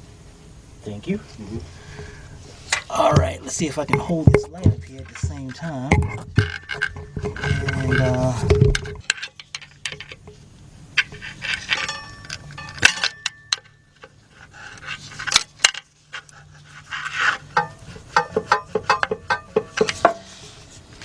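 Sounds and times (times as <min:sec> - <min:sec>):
metallic clinks of hand tools: 0:11.8 - 0:13.8.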